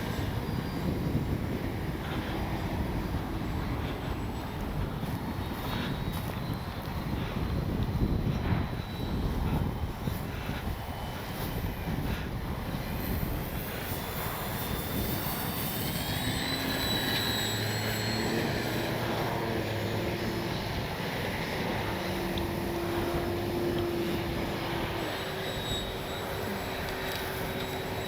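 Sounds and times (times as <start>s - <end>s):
electric motor and propeller whining: 0.0s - 28.0s
wind on microphone: 0.0s - 28.0s.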